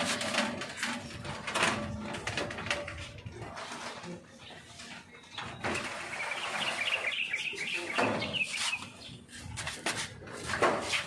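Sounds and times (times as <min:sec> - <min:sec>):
small birds twittering: 0:04.4 - 0:09.3.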